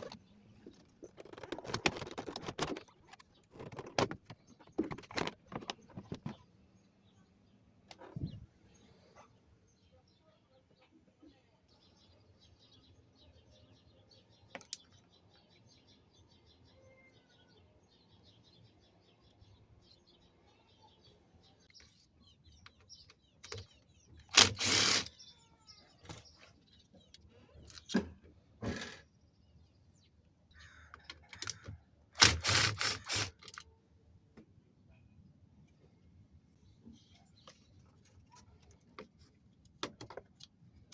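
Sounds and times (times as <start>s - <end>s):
faint bird chirps: 6.3s - 24.3s.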